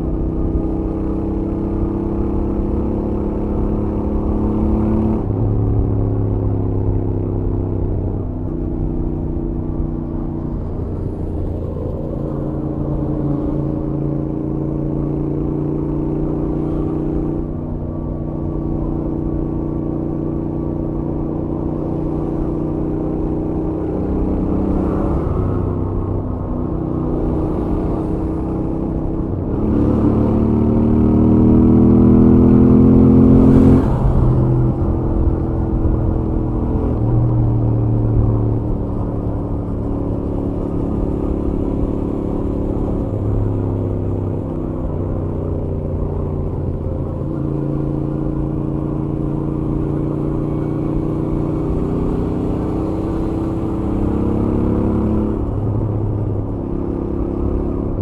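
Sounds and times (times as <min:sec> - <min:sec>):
motorcycle engine on highway: 0:00.0 - 0:58.0.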